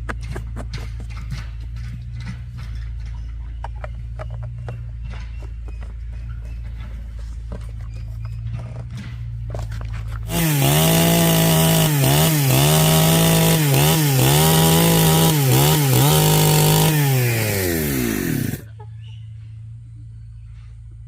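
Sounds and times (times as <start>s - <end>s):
power saw cutting wood: 10.3s - 18.7s.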